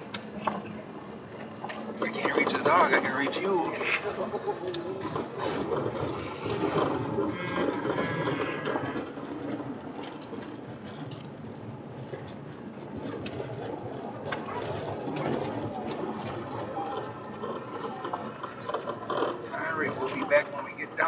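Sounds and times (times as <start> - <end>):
car road noise: 0.0 - 21.0
dog whining: 16.6 - 18.7.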